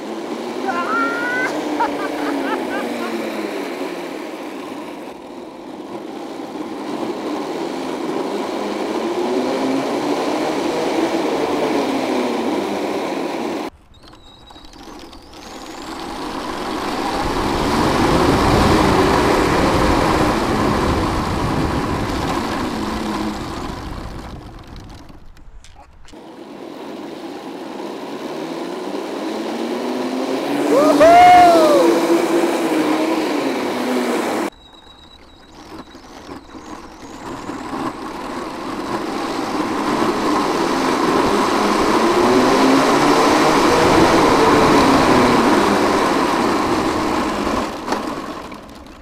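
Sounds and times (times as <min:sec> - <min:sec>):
electric motor whine: 0:00.0 - 0:25.0, 0:26.2 - 0:48.9
tank tracks running: 0:00.0 - 0:26.4, 0:30.5 - 0:49.0.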